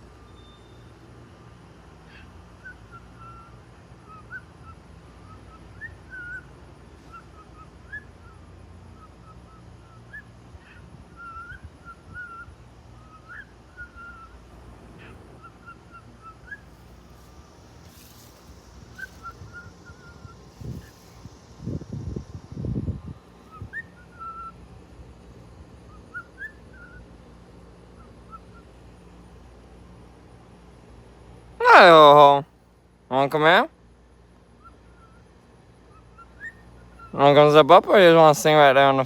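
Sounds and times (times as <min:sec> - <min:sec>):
low outdoor rumble: 0:00.0 - 0:39.0
bird chirping whistled notes: 0:00.2 - 0:00.9, 0:09.0 - 0:14.4, 0:15.0 - 0:17.3, 0:17.9 - 0:21.5, 0:23.4 - 0:24.6, 0:25.9 - 0:27.0.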